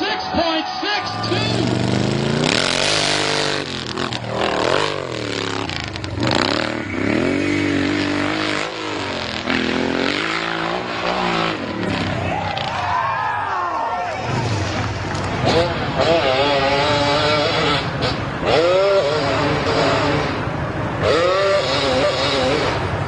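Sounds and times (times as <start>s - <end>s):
motorcycle engine revving: 1.3s - 12.8s, 14.2s - 23.0s.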